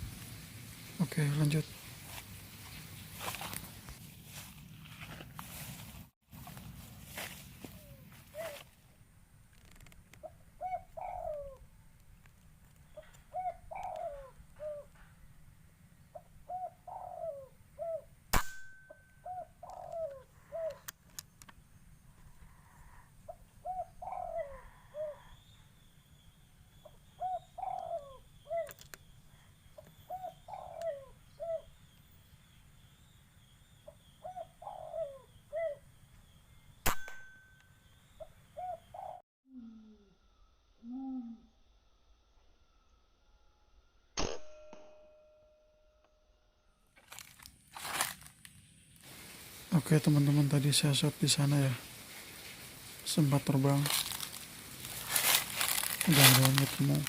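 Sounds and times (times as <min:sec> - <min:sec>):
dove cooing: 0:07.7 - 0:08.6, 0:10.2 - 0:11.7, 0:12.9 - 0:15.1, 0:16.1 - 0:18.1, 0:19.2 - 0:20.9, 0:22.4 - 0:25.6, 0:26.8 - 0:31.8, 0:33.9 - 0:35.8, 0:38.2 - 0:40.0.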